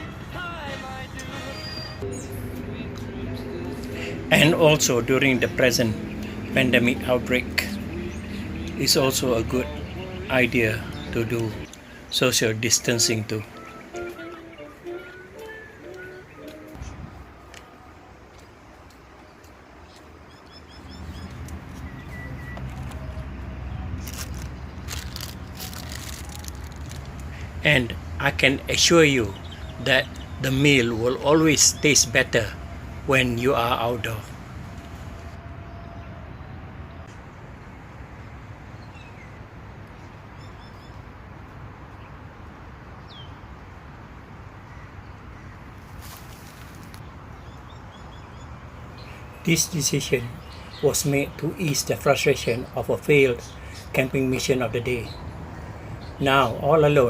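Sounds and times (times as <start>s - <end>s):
whistled bird note: 1.4s - 2.3s
small birds chirping: 1.4s - 17.0s, 17.6s - 36.1s, 44.6s - 57.0s.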